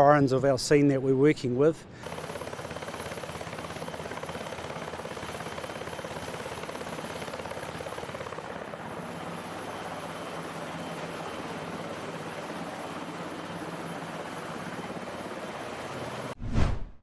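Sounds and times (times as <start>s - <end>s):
helicopter rotor beating: 2.0s - 16.4s.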